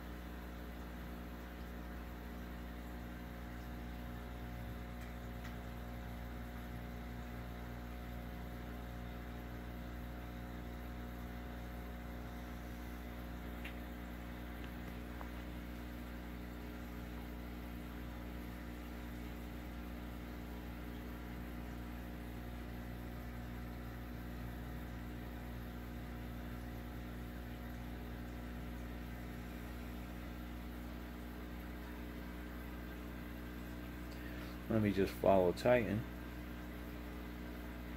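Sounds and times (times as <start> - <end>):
aquarium equipment humming: 0.0 - 37.9.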